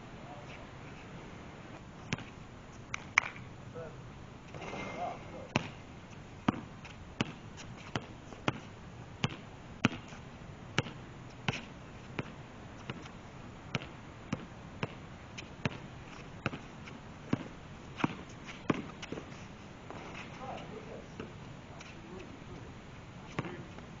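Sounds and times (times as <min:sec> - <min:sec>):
basketball bouncing on hard court: 0:05.6 - 0:05.8, 0:06.5 - 0:10.1, 0:10.8 - 0:11.6, 0:17.3 - 0:19.2, 0:23.4 - 0:23.7.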